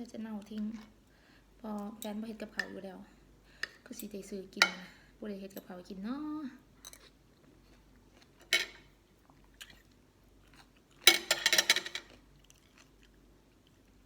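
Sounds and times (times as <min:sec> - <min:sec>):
person chewing crunchy food: 0:09.2 - 0:11.1, 0:12.1 - 0:14.0.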